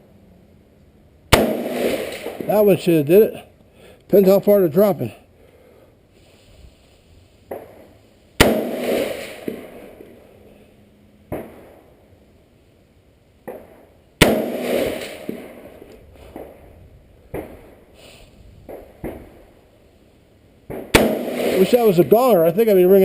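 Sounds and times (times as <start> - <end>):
gunshot crack with echo: 1.3 - 2.8, 8.4 - 9.9, 13.5 - 15.7, 20.7 - 22.1.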